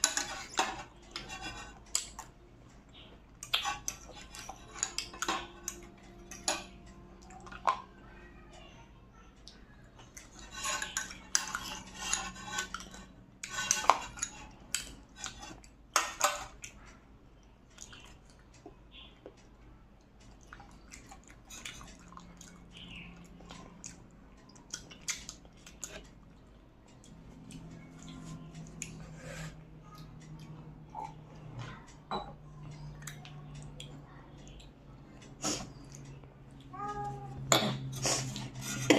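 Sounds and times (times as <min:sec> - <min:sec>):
tableware clinking on a plate: 0:03.5 - 0:06.9, 0:32.0 - 0:32.4.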